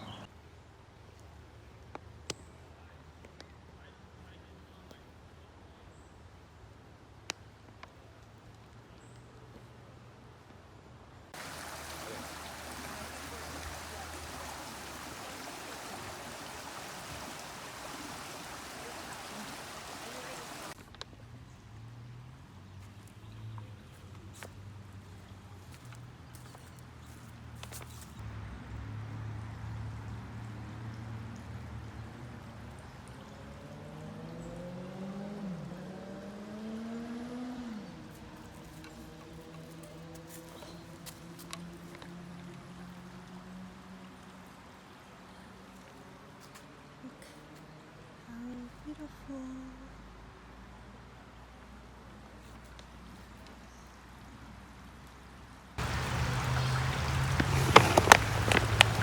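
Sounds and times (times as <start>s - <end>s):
road noise: 0.0s - 5.8s, 11.3s - 59.0s
stream water rushing: 11.4s - 20.8s, 55.7s - 59.0s
vehicle engine accelerating: 33.3s - 40.9s.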